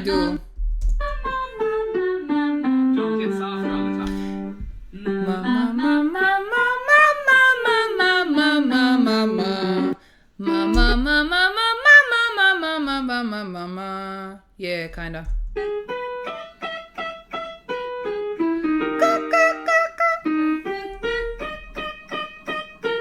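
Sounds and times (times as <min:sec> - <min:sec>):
person singing vocal scales: 0:00.0 - 0:00.5, 0:03.8 - 0:14.4, 0:18.4 - 0:22.2.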